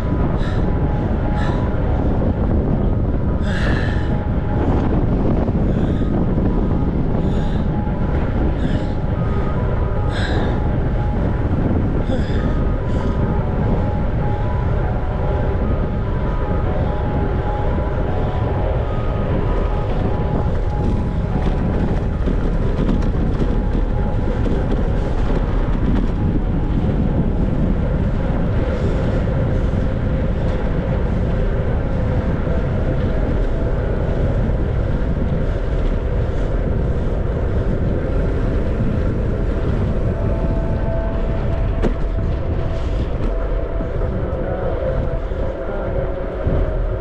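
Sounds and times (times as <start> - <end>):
faint steady tones: 0.0 - 47.0
wind buffeting microphone: 0.0 - 47.0.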